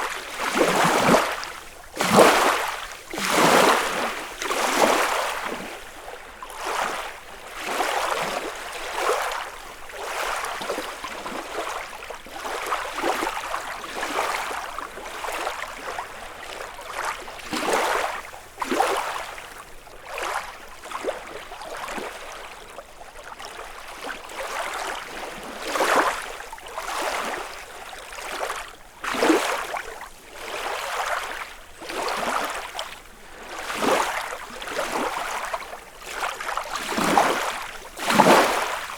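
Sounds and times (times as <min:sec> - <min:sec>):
waves lapping against shore: 0:00.0 - 0:38.9.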